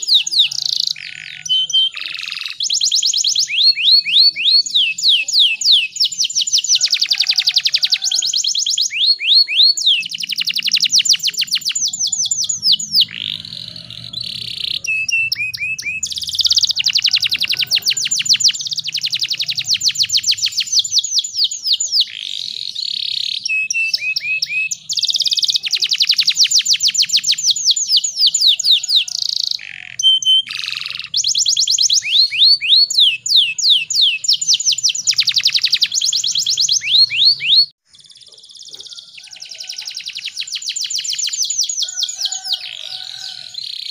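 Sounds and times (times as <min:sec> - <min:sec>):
canary singing in trills: 0:00.0 - 0:43.9.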